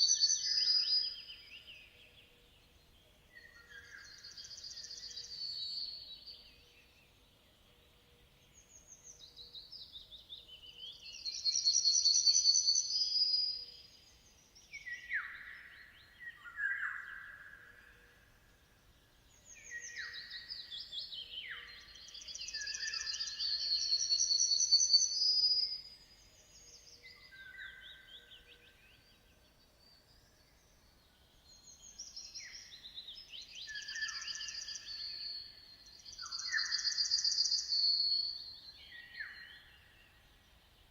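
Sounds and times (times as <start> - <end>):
songbird singing trills: 0.0 - 40.9.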